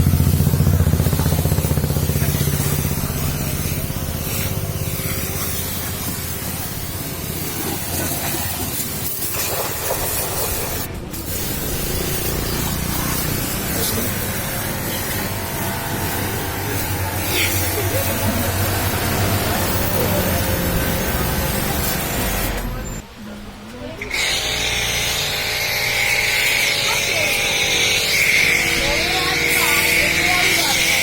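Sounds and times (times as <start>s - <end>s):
low engine hum: 0.0s - 8.9s
water spraying: 0.0s - 23.0s, 24.0s - 31.0s.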